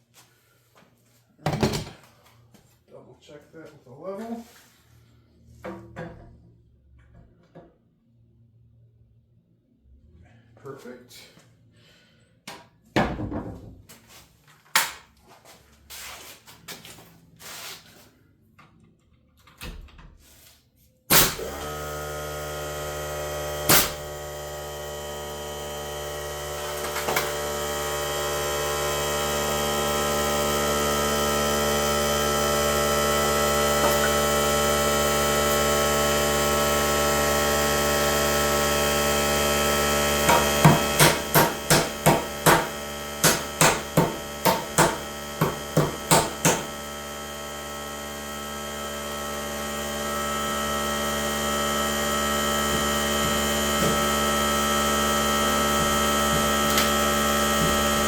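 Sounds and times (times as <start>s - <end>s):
power tool motor running: 21.1s - 58.0s
wood and tools knocking: 40.2s - 46.7s, 52.7s - 54.2s, 55.8s - 58.0s.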